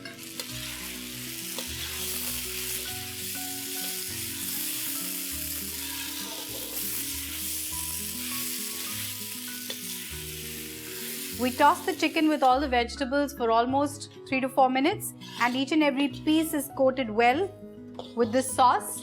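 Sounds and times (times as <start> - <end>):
food sizzling in a pan: 0.0 - 12.7, 15.1 - 16.2
background music: 0.0 - 19.0.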